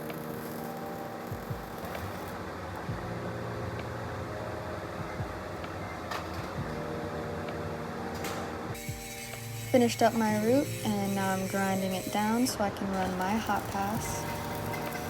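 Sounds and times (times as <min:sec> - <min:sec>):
welding arc hissing: 0:00.0 - 0:02.5, 0:08.7 - 0:15.0
machine hum: 0:00.0 - 0:15.0.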